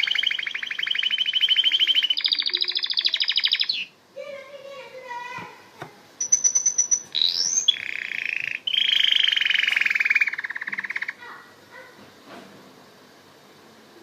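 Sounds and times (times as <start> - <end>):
canary singing: 0.0 - 4.6, 6.2 - 11.9.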